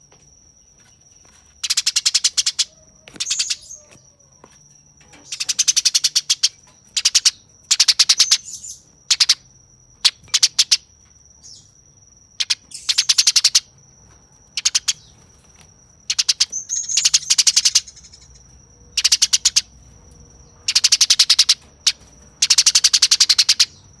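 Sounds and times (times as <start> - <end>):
sparrow harsh chattering calls: 1.6 - 4.0, 5.2 - 9.4, 10.0 - 10.8, 12.4 - 13.7, 14.6 - 15.2, 16.1 - 19.8, 20.6 - 23.8.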